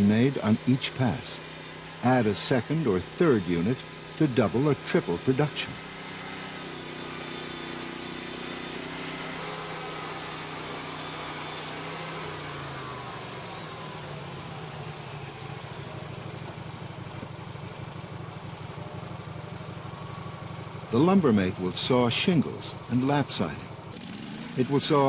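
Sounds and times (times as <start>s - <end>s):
saw blade cutting wood: 0.0s - 12.9s, 23.9s - 25.0s
sawmill engine running: 0.0s - 25.0s.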